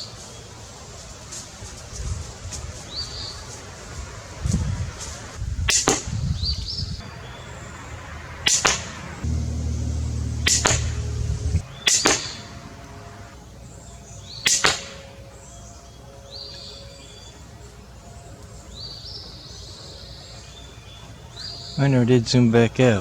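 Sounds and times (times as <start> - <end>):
low rumble: 7.9 - 13.4
crossbow shot snaps: 8.5 - 12.4, 14.5 - 15.1.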